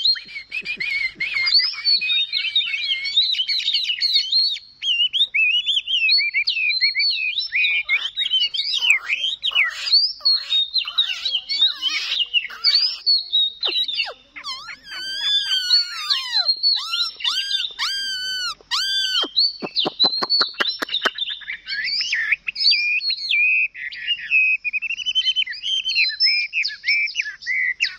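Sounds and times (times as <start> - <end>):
songbird whistling and warbling: 0.0 - 27.9.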